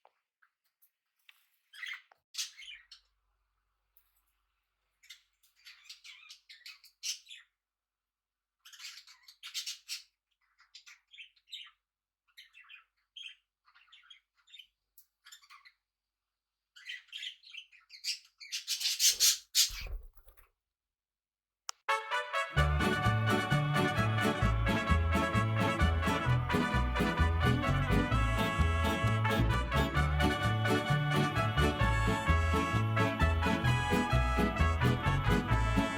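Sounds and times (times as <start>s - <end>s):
parrots chirping and squawking: 1.7s - 3.2s, 5.0s - 7.6s, 8.5s - 16.0s, 16.7s - 20.0s.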